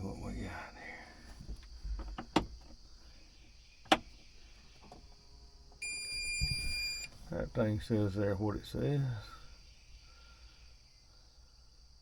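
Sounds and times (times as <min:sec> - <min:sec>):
electronic warning beep: 0:05.8 - 0:07.1.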